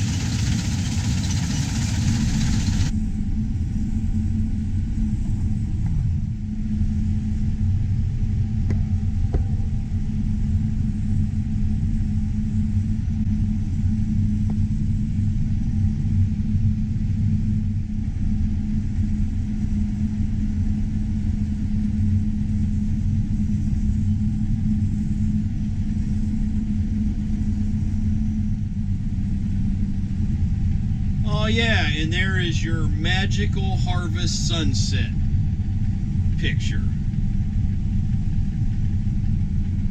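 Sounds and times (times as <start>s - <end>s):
heavy machinery engine droning: 0.0s - 2.9s, 31.3s - 35.6s.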